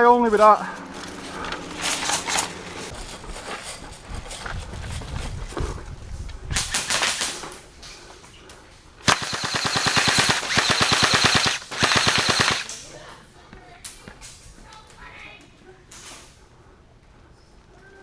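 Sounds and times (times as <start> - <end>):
airsoft gun firing bursts: 9.0 - 12.8.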